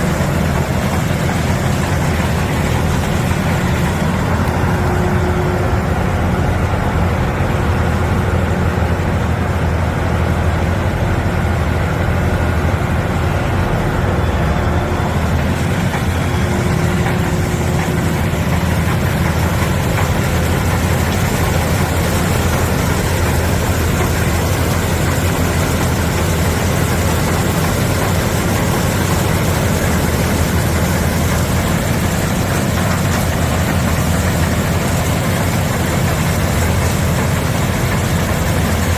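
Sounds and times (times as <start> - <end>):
combine harvester drone: 0.0 - 38.9.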